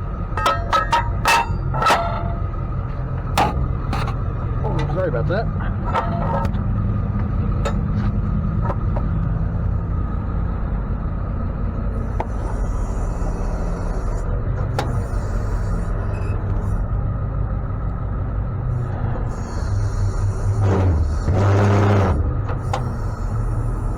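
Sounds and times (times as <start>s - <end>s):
road rumble: 0.0s - 23.9s
truck engine running: 0.0s - 23.9s.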